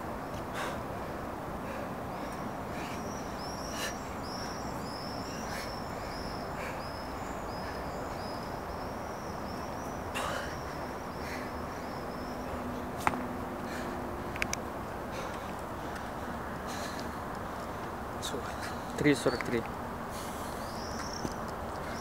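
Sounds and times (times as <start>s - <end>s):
outdoor background noise: 0.0s - 22.0s
sharp clicks: 14.3s - 14.6s
small bird chirping: 20.4s - 22.0s.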